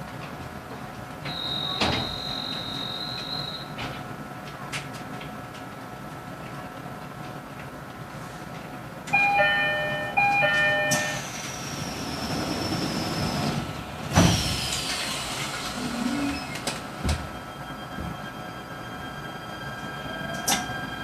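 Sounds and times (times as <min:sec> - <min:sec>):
train door chime: 0:01.3 - 0:03.8, 0:09.1 - 0:11.5, 0:16.9 - 0:21.0
train equipment hum: 0:08.6 - 0:21.0
doors shutting with a thud: 0:16.5 - 0:17.3.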